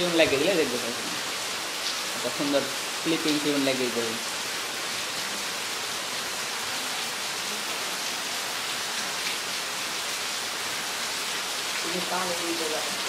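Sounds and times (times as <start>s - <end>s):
heavy rain on wet road: 0.0s - 13.0s.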